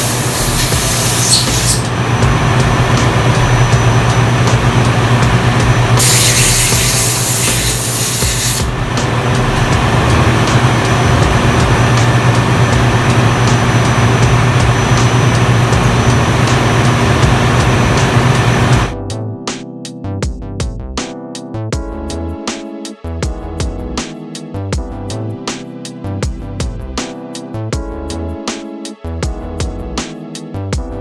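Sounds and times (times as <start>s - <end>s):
air hiss: 0.0s - 1.9s, 6.0s - 8.7s
diesel engine drone: 0.0s - 19.0s.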